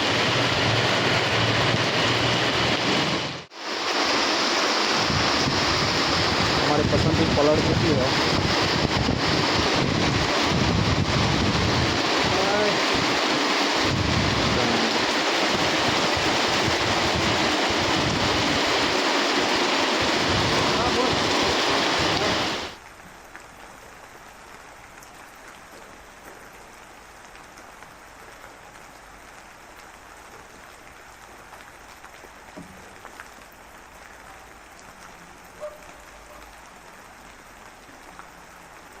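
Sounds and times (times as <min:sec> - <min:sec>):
heavy rain downpour: 0:00.0 - 0:39.0
light rain: 0:00.0 - 0:39.0.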